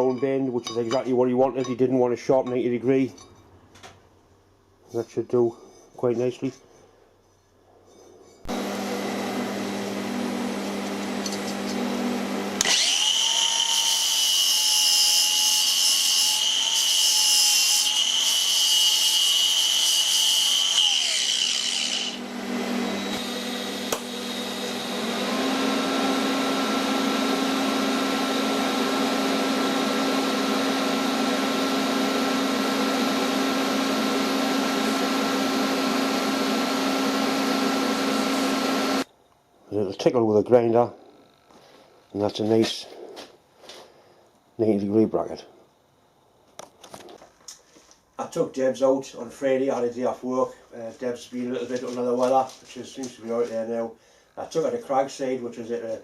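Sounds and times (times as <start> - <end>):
power tool steady hum: 8.5 - 39.1
high-pitched whining tool: 12.6 - 39.1.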